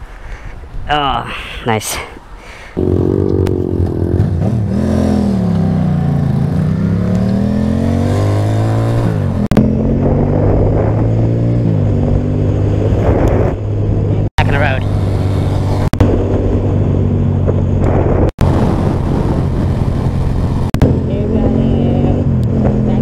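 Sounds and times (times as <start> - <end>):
motorcycle engine revving: 2.8 - 23.0.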